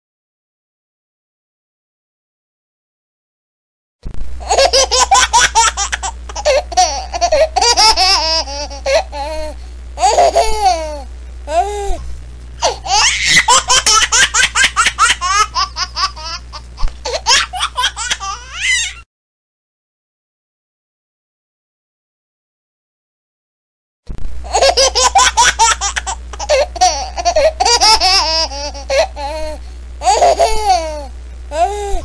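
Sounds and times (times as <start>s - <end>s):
low steady hum: 4.0s - 19.0s, 24.1s - 32.0s.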